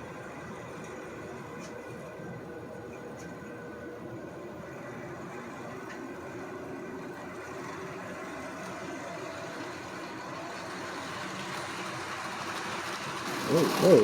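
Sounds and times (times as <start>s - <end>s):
model train motor whir: 7.2s - 14.0s
wheel rumble: 12.2s - 14.0s.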